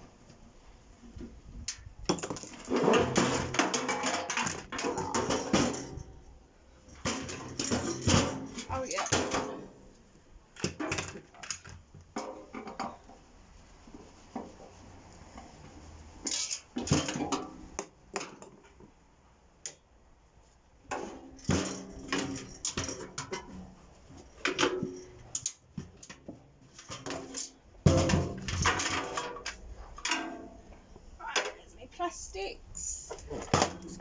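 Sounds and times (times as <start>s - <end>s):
metal and plastic parts clattering: 2.1s - 6.2s, 6.8s - 9.7s, 10.6s - 13.0s, 24.4s - 30.6s.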